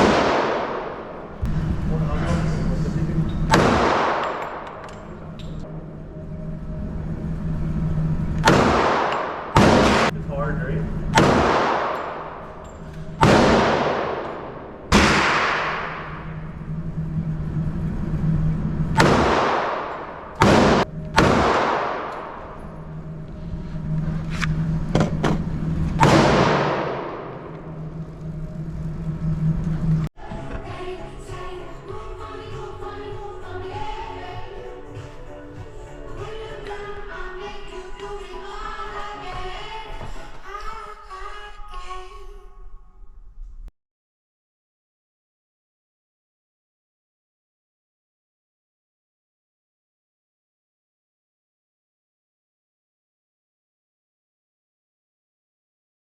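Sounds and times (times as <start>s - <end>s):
gunshot with reverberant tail: 0.0s - 1.5s, 3.4s - 5.3s, 8.4s - 10.1s, 11.1s - 16.6s, 18.9s - 23.0s, 26.0s - 28.0s
steady low hum: 0.0s - 41.2s
music: 4.4s - 8.7s, 27.5s - 43.2s.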